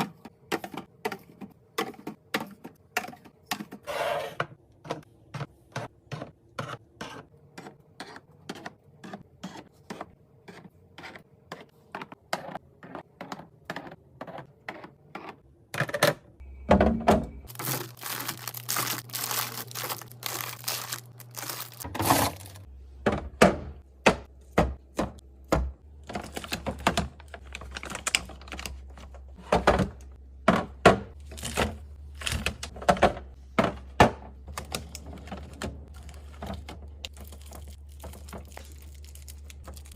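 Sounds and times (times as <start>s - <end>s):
packaging rustling: 17.5s - 22.6s.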